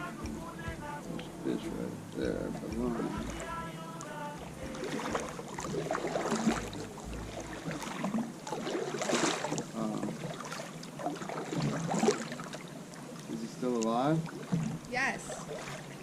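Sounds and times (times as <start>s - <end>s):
paddle knocking against hull: 0.0s - 1.4s, 2.2s - 3.8s, 4.4s - 12.5s, 14.2s - 16.0s
water splashing around kayak: 0.0s - 16.0s
paddle swish: 2.6s - 12.7s.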